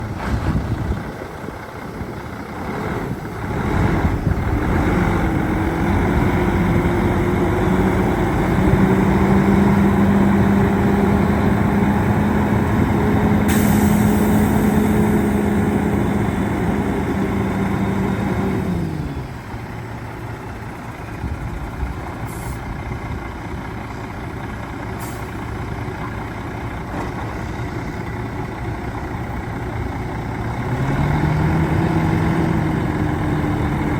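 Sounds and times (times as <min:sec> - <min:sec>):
diesel truck engine running: 0:00.0 - 0:33.9
brief air hiss: 0:13.5 - 0:14.8, 0:22.3 - 0:22.7, 0:25.0 - 0:25.4.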